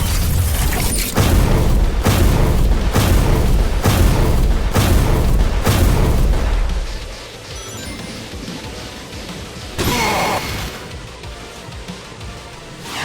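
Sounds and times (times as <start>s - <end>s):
music: 0.0s - 13.0s
heavy booming impacts: 1.1s - 7.2s.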